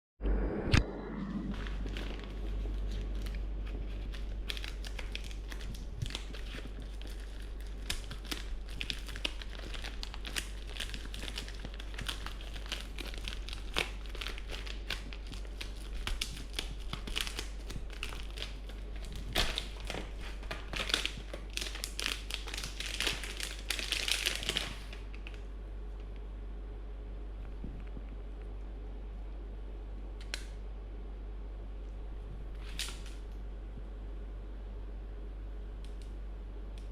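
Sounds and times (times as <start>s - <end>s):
steady low hum: 0.2s - 36.9s
plastic packaging crinkling: 1.5s - 25.5s, 32.5s - 33.3s.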